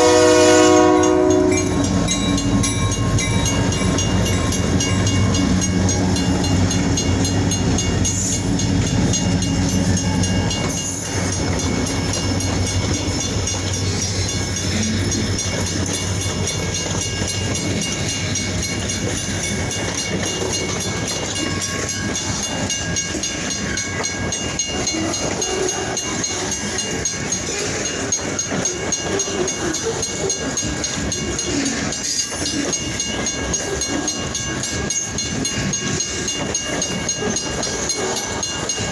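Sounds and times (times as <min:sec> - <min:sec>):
locomotive engine hum: 0:00.0 - 0:38.9
train wheels clattering on rails: 0:00.0 - 0:38.9.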